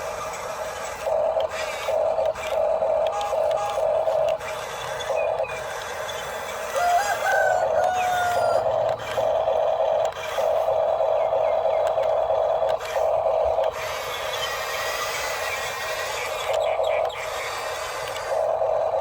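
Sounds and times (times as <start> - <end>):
electric motor and gearbox whining: 0.0 - 19.0
rooster crowing: 6.6 - 8.8.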